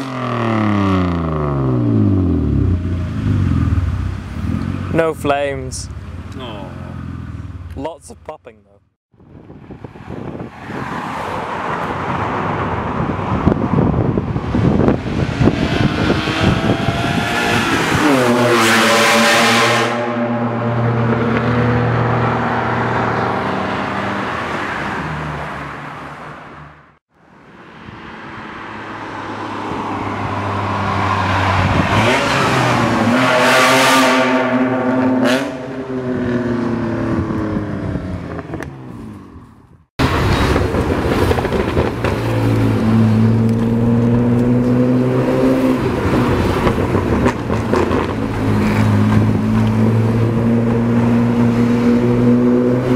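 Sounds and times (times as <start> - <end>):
car engine revving: 14.6 - 25.4, 29.7 - 38.9, 40.0 - 52.9
exhaust pop: 40.0 - 42.8.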